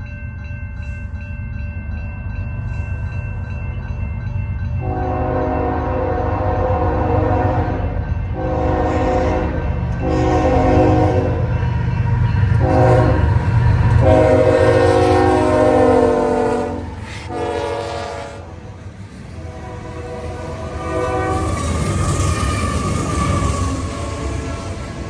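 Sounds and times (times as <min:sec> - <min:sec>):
passing train rumble: 0:00.0 - 0:25.0
locomotive air horn blasts: 0:04.8 - 0:11.5, 0:12.6 - 0:13.3, 0:14.0 - 0:18.8, 0:19.4 - 0:21.8.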